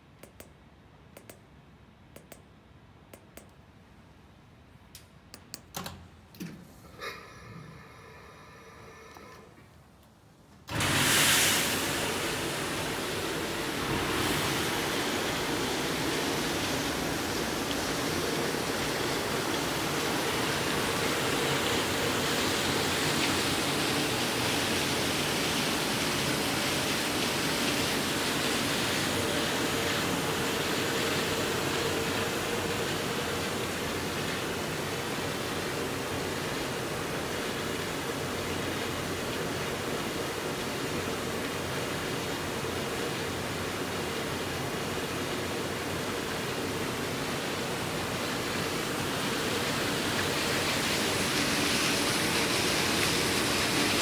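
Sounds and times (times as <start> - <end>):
wash pump hum: 6.3 - 54.0
water spraying in dishwasher: 10.7 - 35.7, 48.7 - 54.0.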